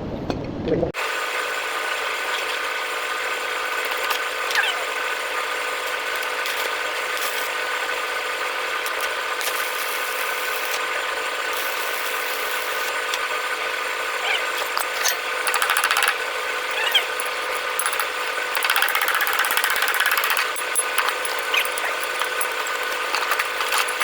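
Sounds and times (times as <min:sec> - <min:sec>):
power tool rattling: 0:14.5 - 0:24.0.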